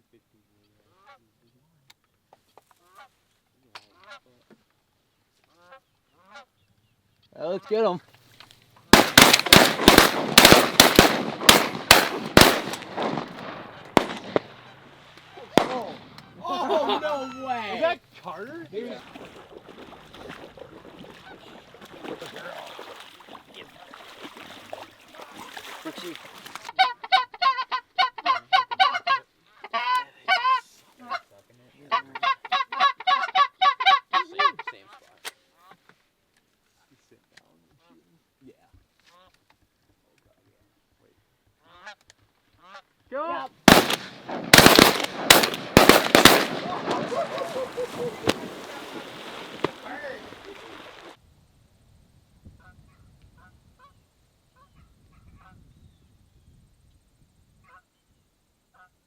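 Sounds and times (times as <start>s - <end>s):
shotgun blasts: 9.0s - 14.8s, 15.5s - 16.3s, 43.7s - 50.1s
geese honking: 26.7s - 31.2s, 31.8s - 35.0s, 43.7s - 51.2s.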